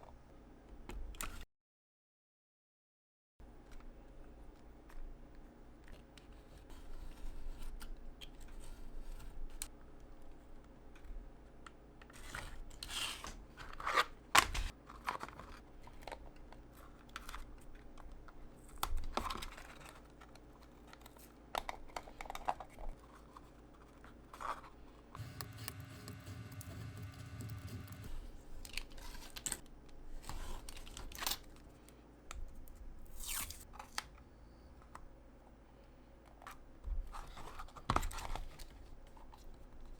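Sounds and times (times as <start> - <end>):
rustling and scraping of materials: 12.1 - 31.9
steady mechanical hum: 22.0 - 37.2.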